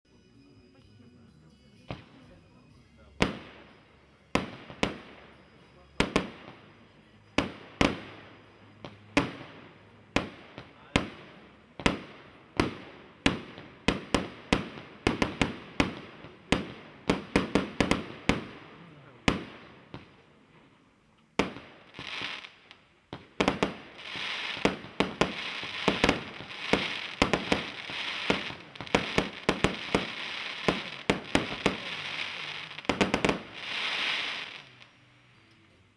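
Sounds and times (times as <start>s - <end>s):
fireworks launch and burst reports: 3.2s - 6.8s, 23.2s - 34.7s
fireworks crackle: 7.4s - 20.8s, 21.4s - 35.0s.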